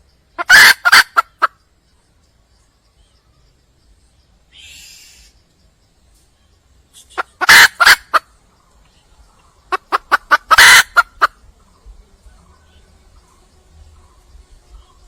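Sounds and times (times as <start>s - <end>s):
hen calling: 0.4s - 1.6s, 4.5s - 5.4s, 7.0s - 8.3s, 9.7s - 11.4s.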